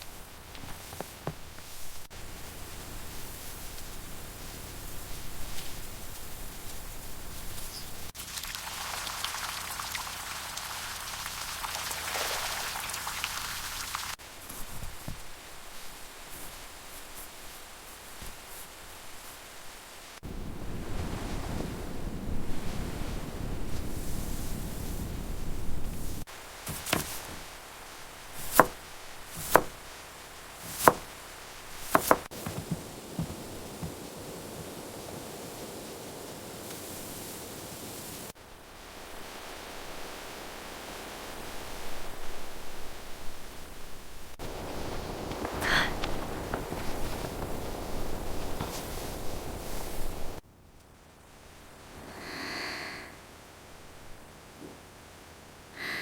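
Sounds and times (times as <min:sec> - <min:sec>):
rain falling: 0:00.0 - 0:50.4
knife chopping on wooden board: 0:26.7 - 0:27.4, 0:28.4 - 0:28.8, 0:29.4 - 0:29.8, 0:30.6 - 0:31.1, 0:31.9 - 0:33.4.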